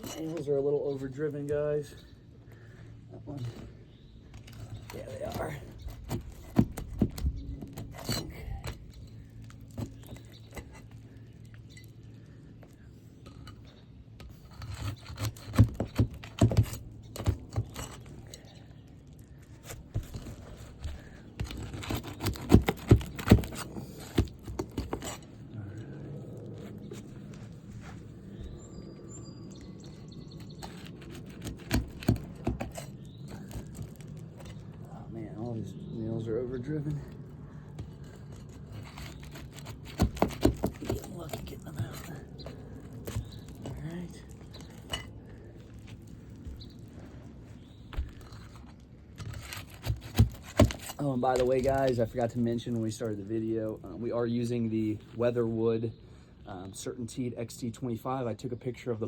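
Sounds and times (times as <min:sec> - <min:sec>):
tool scraping: 0:00.0 - 0:01.4, 0:04.4 - 0:18.6, 0:19.2 - 0:25.6, 0:29.9 - 0:34.8, 0:37.7 - 0:53.7
outdoor background hum: 0:00.0 - 0:59.0
sharp clicks and knocks: 0:37.8 - 0:45.1.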